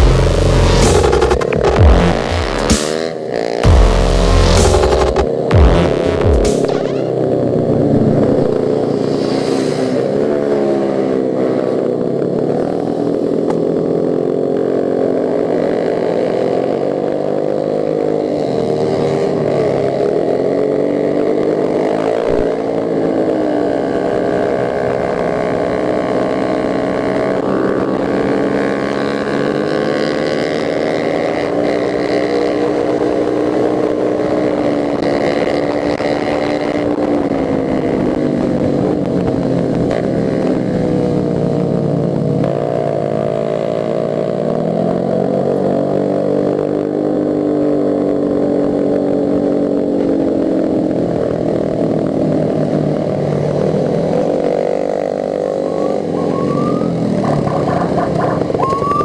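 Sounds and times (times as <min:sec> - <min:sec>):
motorcycle engine revving: 0:00.0 - 0:59.0
wind rushing past microphone: 0:07.4 - 0:10.4.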